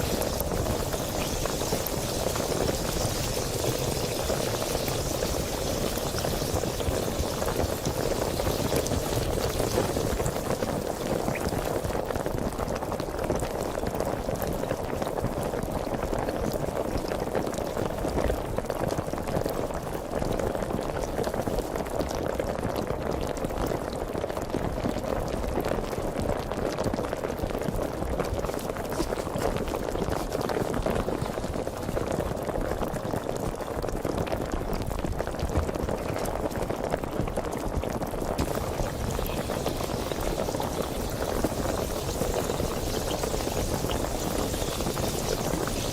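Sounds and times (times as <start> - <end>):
sparkling water fizzing: 0.0 - 12.0, 38.4 - 45.9.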